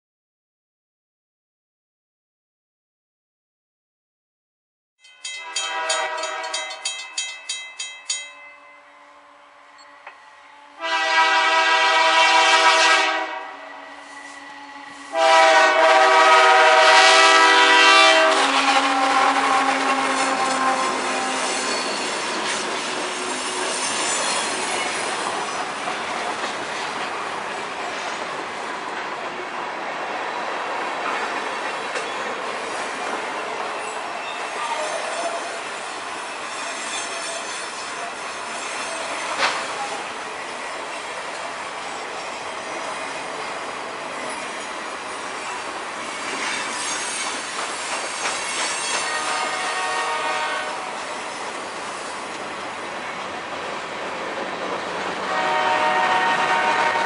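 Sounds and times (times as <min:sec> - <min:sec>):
locomotive air horn blasts: 0:05.4 - 0:06.7, 0:08.8 - 0:21.6, 0:49.0 - 0:51.1, 0:55.3 - 0:57.0
train wheels rumbling on rail: 0:09.8 - 0:57.0.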